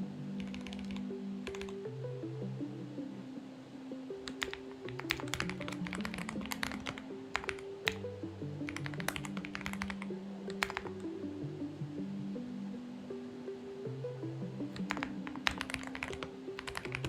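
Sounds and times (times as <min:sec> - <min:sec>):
music with slow held notes: 0:00.0 - 0:17.0
typing on mechanical keyboard: 0:00.4 - 0:01.8, 0:04.3 - 0:08.1, 0:08.7 - 0:11.1, 0:14.7 - 0:17.0.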